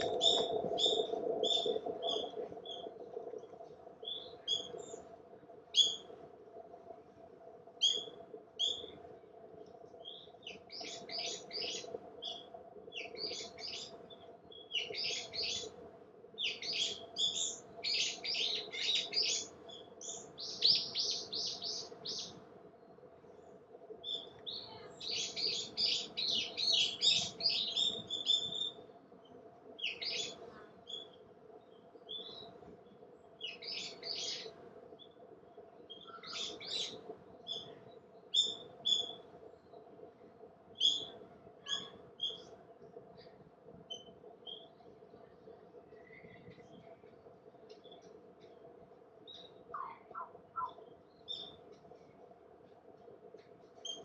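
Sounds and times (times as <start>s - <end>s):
faint steady hum: 0.0s - 54.0s
songbirds chirping: 0.0s - 54.0s.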